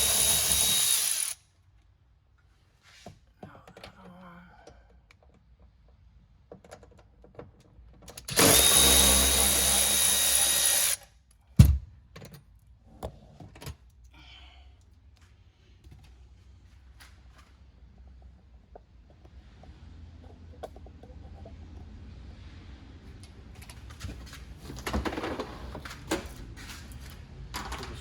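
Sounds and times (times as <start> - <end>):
power drill running: 0.0 - 1.4, 8.3 - 11.0.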